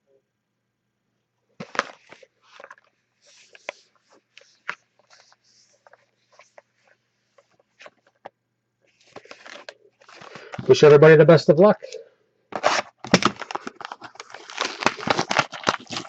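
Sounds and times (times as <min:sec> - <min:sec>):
plastic wrapping crinkling: 0:08.9 - 0:10.9, 0:12.5 - 0:16.0.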